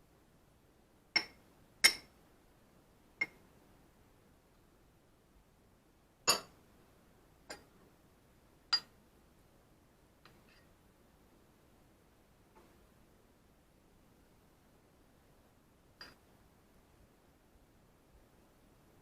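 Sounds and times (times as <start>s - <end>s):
cutlery clinking against dish: 6.3s - 6.5s.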